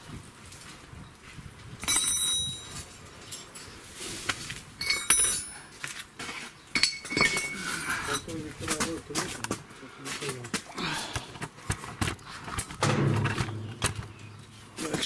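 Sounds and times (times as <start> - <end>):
steel spanners clinking: 4.8 - 5.7, 6.8 - 8.4, 12.8 - 15.0.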